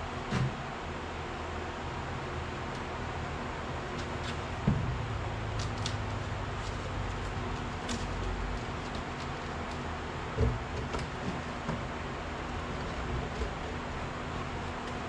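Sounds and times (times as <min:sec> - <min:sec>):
dull knock: 0:04.6 - 0:05.0.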